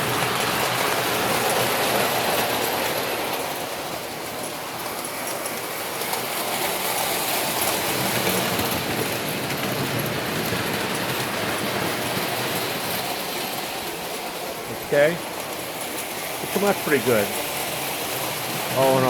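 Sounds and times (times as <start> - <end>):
toy train whirring on track: 0.0 - 19.0.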